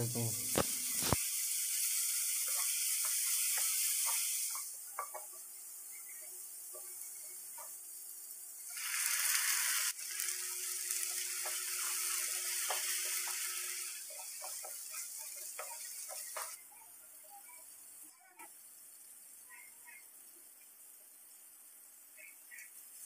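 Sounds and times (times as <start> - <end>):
onions sizzling in a pan: 0.0 - 23.0
wooden spatula scraping a pan: 11.0 - 16.6.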